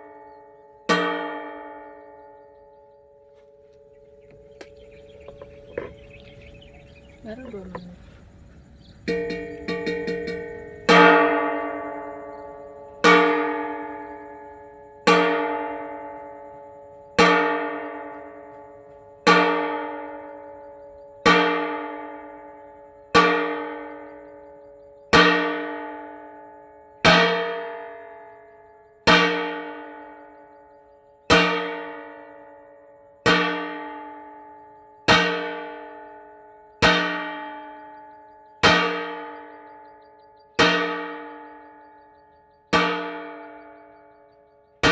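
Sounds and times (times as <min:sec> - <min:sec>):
metal cooking pot struck: 0:09.1 - 0:11.4, 0:42.8 - 0:43.2.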